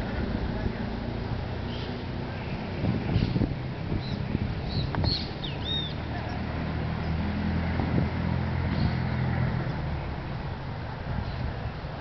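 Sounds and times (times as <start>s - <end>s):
wind on microphone: 2.3s - 12.0s
bird chirps: 4.0s - 6.4s.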